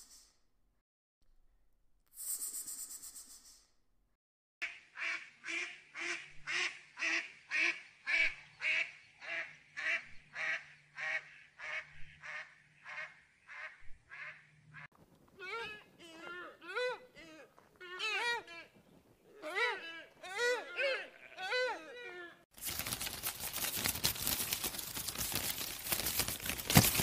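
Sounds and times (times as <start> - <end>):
wavering bleat: 19.4 - 22.4.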